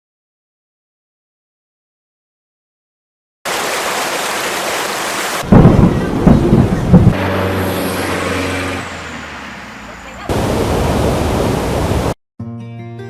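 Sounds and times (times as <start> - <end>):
heavy rain hissing: 3.5 - 6.2, 7.2 - 12.2
thunder crack and rumble: 5.4 - 7.4.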